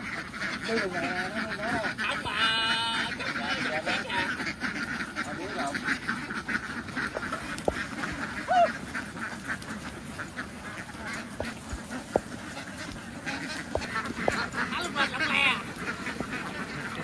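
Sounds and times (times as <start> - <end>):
ducks quacking: 0.0 - 17.0
sharp knocks: 13.6 - 14.5.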